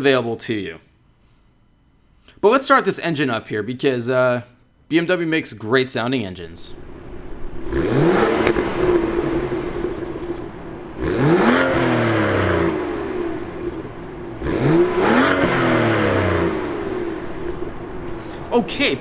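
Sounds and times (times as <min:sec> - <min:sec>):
car engine starting and idling: 0:06.7 - 0:19.0
engine revving: 0:06.8 - 0:18.5.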